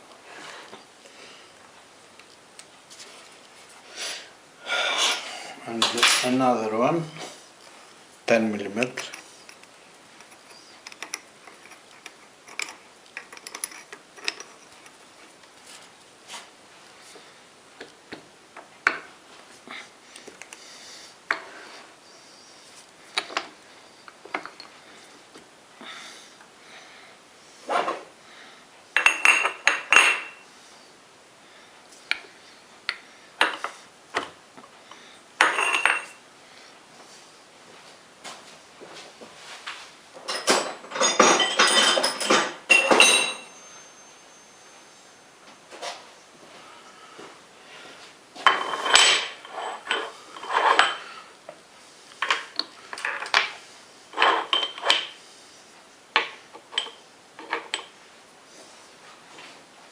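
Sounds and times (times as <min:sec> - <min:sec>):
metal tools clicking and tapping: 0:09.0 - 0:15.0, 0:54.2 - 0:55.2, 0:56.2 - 0:57.9
metal tools clinking: 0:10.2 - 0:15.0, 0:35.4 - 0:36.2, 0:40.2 - 0:44.1, 0:48.4 - 0:51.1, 0:54.2 - 0:55.2, 0:56.6 - 0:57.9.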